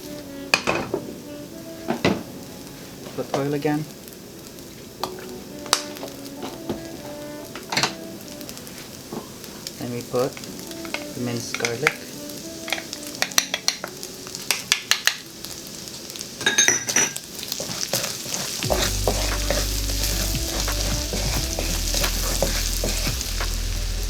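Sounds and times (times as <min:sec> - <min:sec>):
garlic sizzling in hot oil: 0:00.0 - 0:24.0
metal spatula scraping a wok: 0:16.9 - 0:24.0
low hum: 0:18.7 - 0:24.0.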